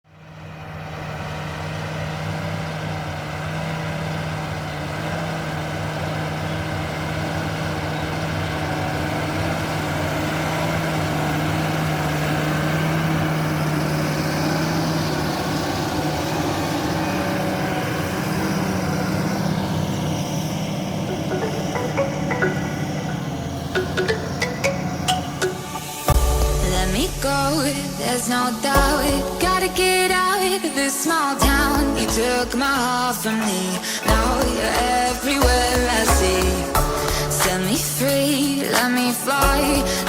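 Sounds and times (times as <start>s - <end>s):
tractor diesel engine running: 0.1s - 40.0s.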